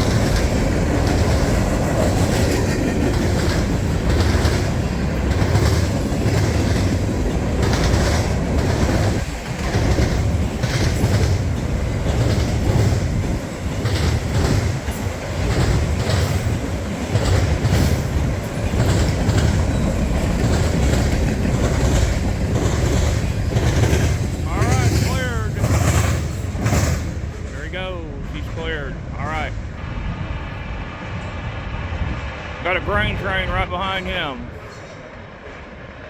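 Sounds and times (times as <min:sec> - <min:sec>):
wheels clacking over rail joints: 0:00.0 - 0:28.8
freight train rumbling: 0:00.0 - 0:36.0.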